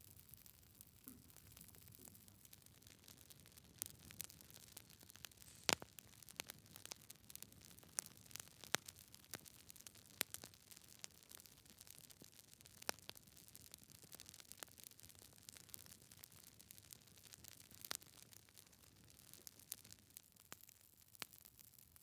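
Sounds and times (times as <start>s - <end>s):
wood fire crackling: 0.1s - 21.8s.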